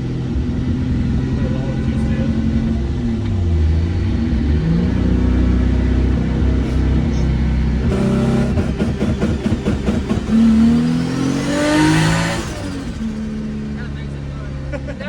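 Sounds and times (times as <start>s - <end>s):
car engine revving: 0.0s - 15.0s
crackling engine clatter: 0.0s - 15.0s
turbo whine: 5.6s - 14.6s.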